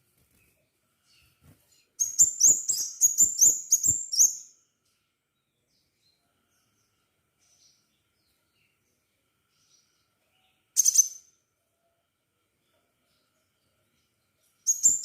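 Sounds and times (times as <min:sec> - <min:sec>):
bird high sharp chirps: 0:02.0 - 0:04.6, 0:10.8 - 0:11.3, 0:14.7 - 0:15.0.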